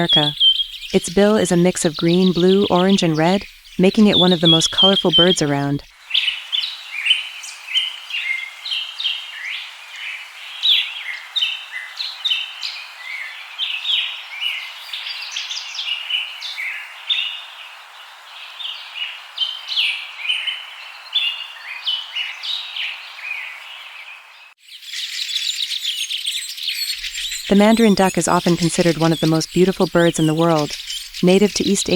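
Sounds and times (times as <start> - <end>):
steady background hiss: 0.0 - 24.6
small birds chirping: 0.0 - 31.9.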